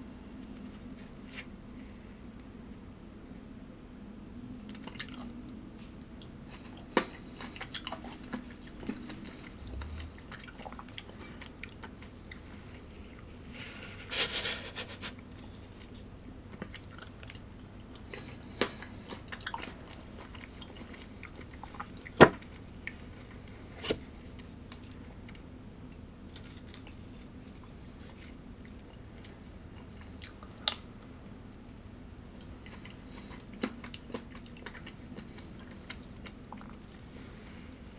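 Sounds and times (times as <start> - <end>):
person chewing crunchy food: 6.2 - 23.6, 32.4 - 37.9.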